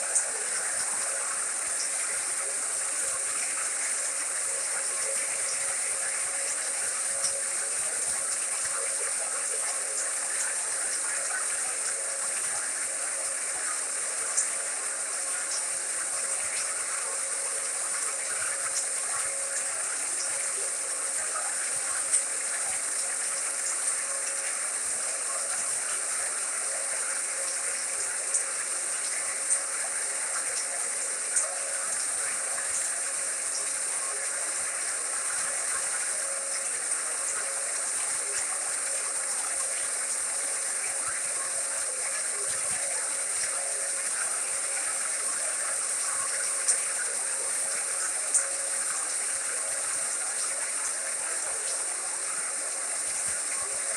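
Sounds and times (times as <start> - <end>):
faint steady hum: 0.0 - 53.9
white-noise hiss: 0.0 - 53.9.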